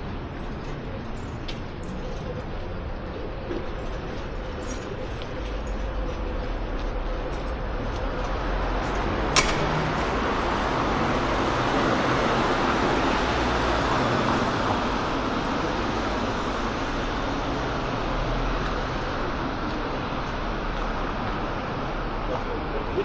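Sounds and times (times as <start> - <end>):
city street traffic: 0.0 - 23.0
sharp click: 9.3 - 10.2.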